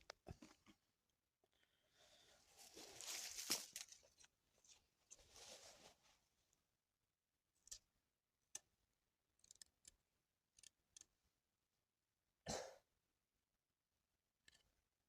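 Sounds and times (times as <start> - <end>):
short rustle: 2.5 - 6.2.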